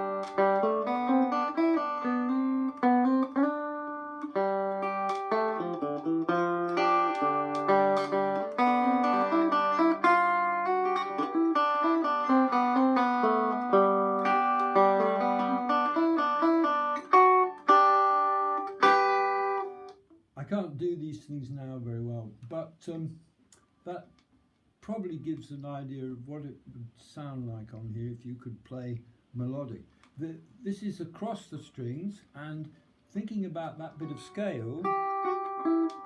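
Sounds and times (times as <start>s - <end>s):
banjo picking a tune: 0.0s - 20.0s, 33.8s - 36.0s.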